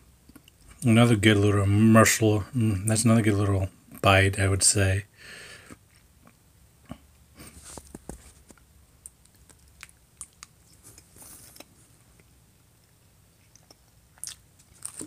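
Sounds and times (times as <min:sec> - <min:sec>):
person chewing food: 0:05.7 - 0:15.0.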